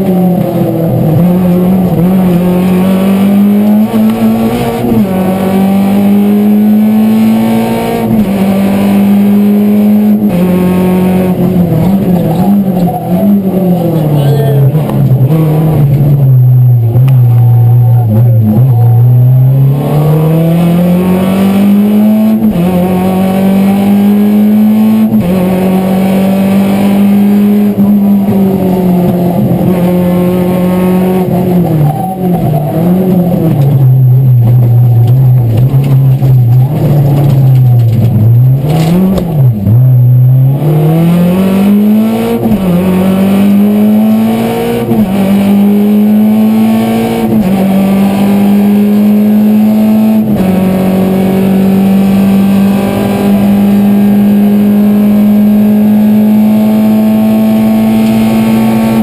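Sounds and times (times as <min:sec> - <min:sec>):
car engine revving and shifting: 0:00.0 - 0:59.0.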